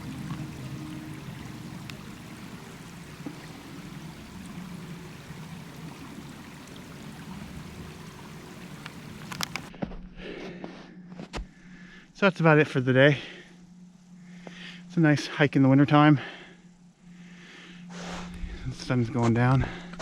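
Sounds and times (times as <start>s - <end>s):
faint ticks: 0.0s - 9.7s
steady rushing outdoor noise: 0.0s - 9.7s.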